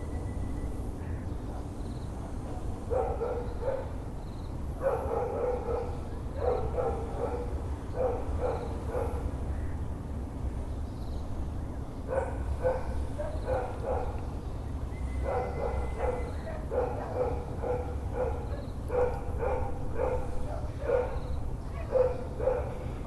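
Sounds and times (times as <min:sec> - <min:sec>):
dog barking: 0:01.5 - 0:04.0, 0:04.8 - 0:09.3, 0:12.1 - 0:14.2, 0:15.2 - 0:22.8.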